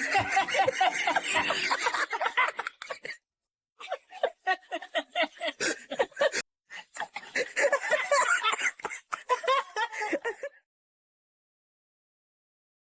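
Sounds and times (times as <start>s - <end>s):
person laughing: 0.0s - 3.2s, 3.8s - 10.6s.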